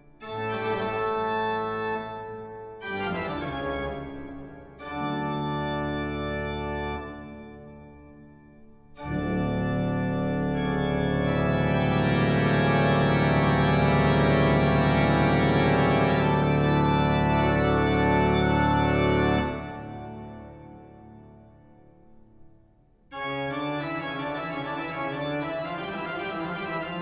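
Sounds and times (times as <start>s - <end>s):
sustained keyboard chords: 9.0s - 21.6s, 23.1s - 27.0s.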